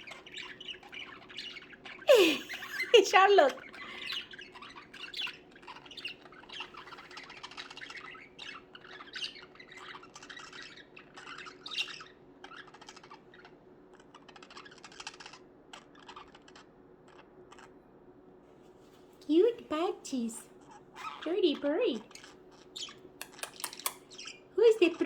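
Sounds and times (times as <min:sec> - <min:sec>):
budgerigars chirping and chattering: 0:00.0 - 0:17.8, 0:19.3 - 0:25.0.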